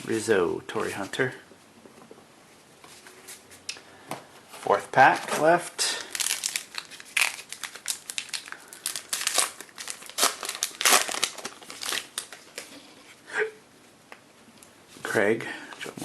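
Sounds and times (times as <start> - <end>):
card pack wrapper tearing and crinkling: 5.1 - 12.8.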